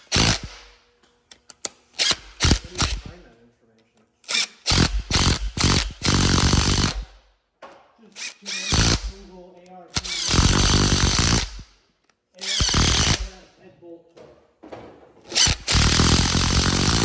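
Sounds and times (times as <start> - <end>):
power tool running bolts down: 0.0 - 0.6, 4.3 - 7.1, 8.2 - 9.2, 10.0 - 11.6, 12.4 - 13.3, 15.3 - 17.0.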